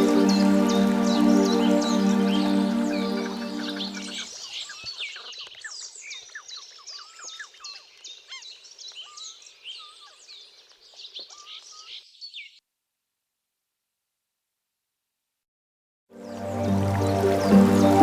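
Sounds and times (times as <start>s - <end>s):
held music chord: 0.0s - 4.2s, 16.2s - 18.0s
small birds chirping: 0.0s - 12.6s.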